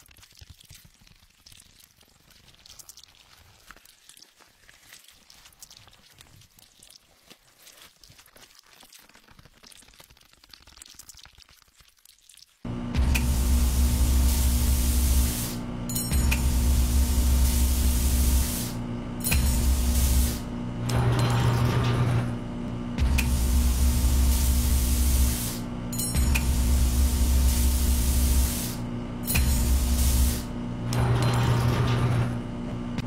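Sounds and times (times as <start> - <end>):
low hum: 12.7 - 33.0
laser hiss over held tone: 23.2 - 25.6, 26.4 - 28.8.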